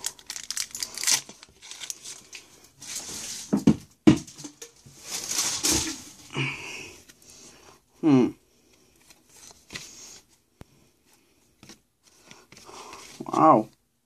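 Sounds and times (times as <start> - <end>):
foil wrapper crinkling: 0.0 - 3.4, 5.0 - 6.2.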